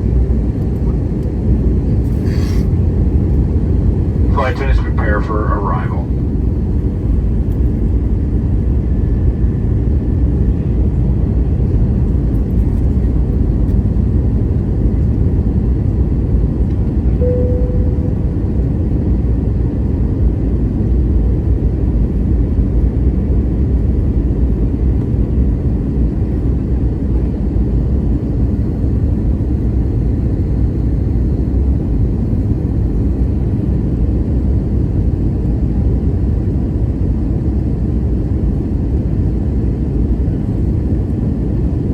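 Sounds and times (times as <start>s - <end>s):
airplane cabin roar: 0.0s - 41.9s
brief tone: 17.2s - 18.8s.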